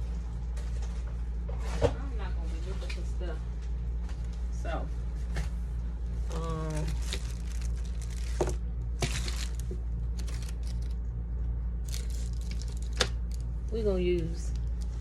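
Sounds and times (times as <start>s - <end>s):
low electrical hum: 0.0s - 15.0s
rustling of craft supplies: 6.2s - 11.1s, 11.8s - 15.0s.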